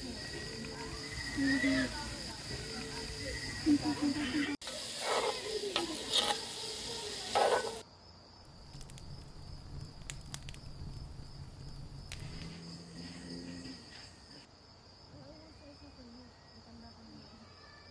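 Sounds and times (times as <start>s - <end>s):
food sizzling: 0.0s - 7.8s, 8.5s - 13.2s
crickets chirping: 0.0s - 17.9s.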